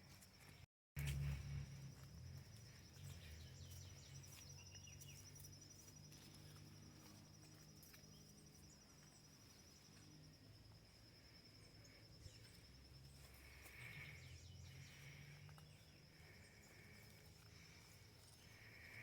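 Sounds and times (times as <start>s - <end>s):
insect trill: 0.1s - 19.0s
low rumble: 1.0s - 4.5s
bird chirps: 2.7s - 6.8s, 13.6s - 17.2s.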